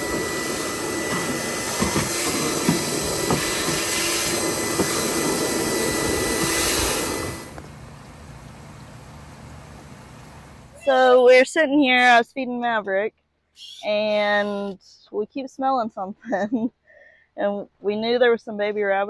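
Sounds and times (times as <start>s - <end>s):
machine motor whirring: 0.0s - 10.8s.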